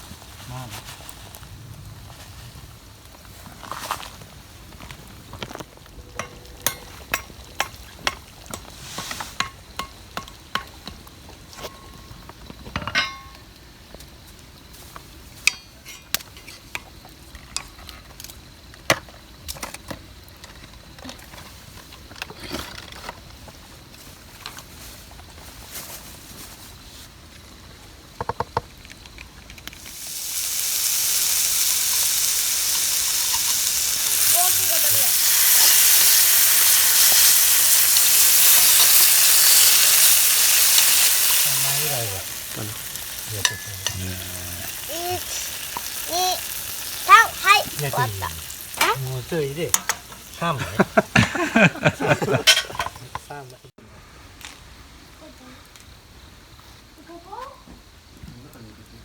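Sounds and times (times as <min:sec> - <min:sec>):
food sizzling in a pan: 0:00.0 - 0:17.8, 0:29.7 - 0:53.7
cookware clicking and clinking: 0:06.2 - 0:08.7, 0:12.8 - 0:13.4, 0:43.4 - 0:44.2, 0:49.7 - 0:51.0, 0:52.1 - 0:53.3.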